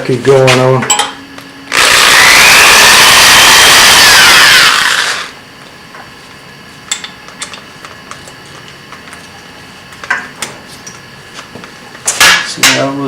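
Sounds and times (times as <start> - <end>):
electric drill running down: 1.7 - 5.4.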